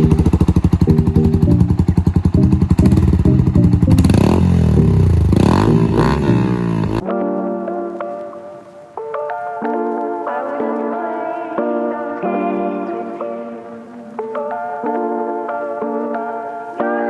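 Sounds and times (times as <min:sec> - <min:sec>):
motorcycle engine revving: 0:00.0 - 0:07.0
music: 0:00.0 - 0:17.0.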